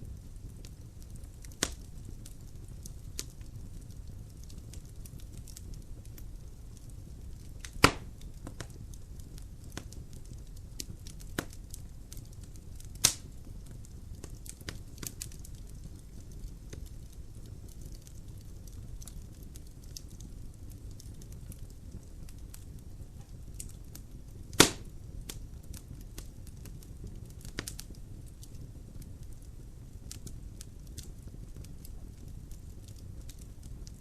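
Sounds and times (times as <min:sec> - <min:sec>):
logs crackling in fireplace: 0:00.0 - 0:34.0
loud sharp pops: 0:07.8 - 0:08.1, 0:24.5 - 0:24.9.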